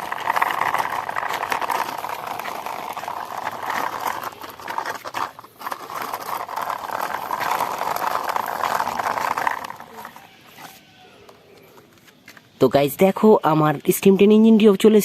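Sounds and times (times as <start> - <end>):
toy train wheels rattling and scraping: 0.0 - 11.0.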